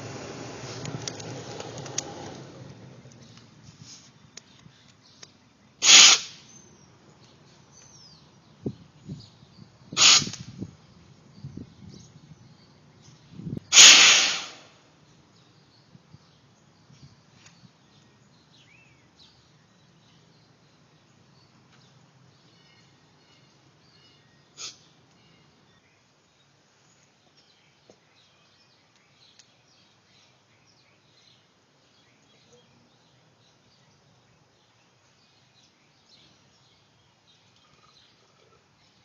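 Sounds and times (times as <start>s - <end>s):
steam hissing puffs: 5.8s - 6.4s, 10.0s - 10.4s, 13.7s - 14.7s.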